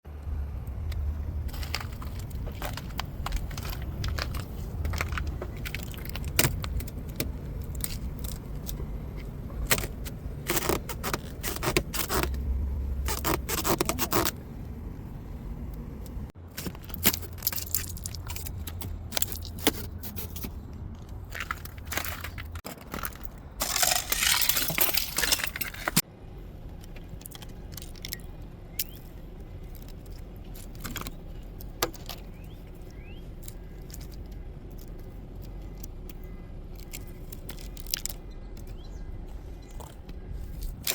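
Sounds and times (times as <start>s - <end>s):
low rumble: 0.0s - 16.4s
ice being chipped and scraped: 9.7s - 12.4s, 13.0s - 14.4s, 23.0s - 26.0s.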